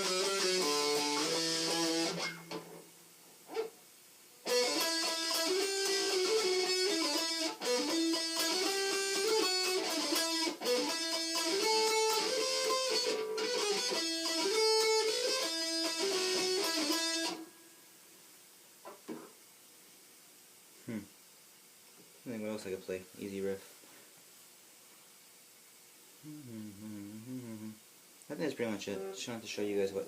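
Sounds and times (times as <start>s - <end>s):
distorted electric guitar riff: 0.0s - 2.8s, 4.4s - 17.4s.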